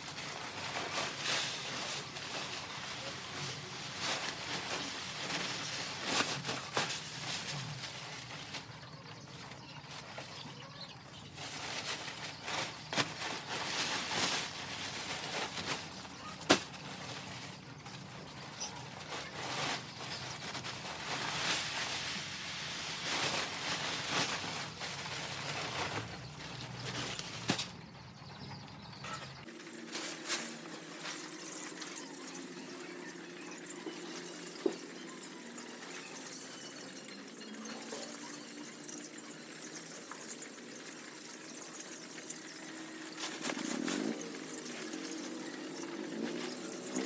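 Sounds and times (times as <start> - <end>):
chickens rustling: 0.0 - 27.7.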